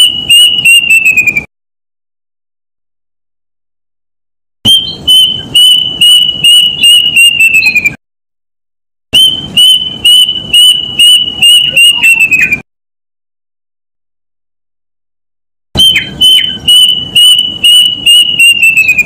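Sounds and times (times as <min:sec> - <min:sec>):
bird whistled call: 0:00.0 - 0:01.5, 0:04.7 - 0:08.0, 0:09.2 - 0:12.6, 0:15.8 - 0:19.0.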